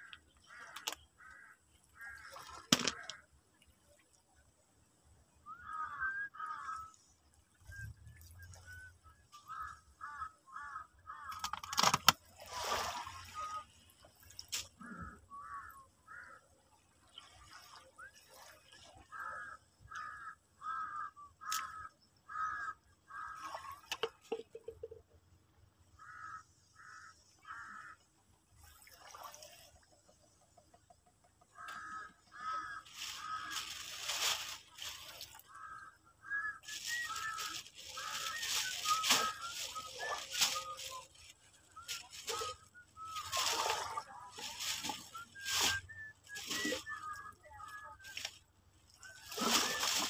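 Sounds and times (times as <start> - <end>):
bird calling in short calls: 5.4 - 11.9, 19.1 - 25.0, 31.5 - 50.0.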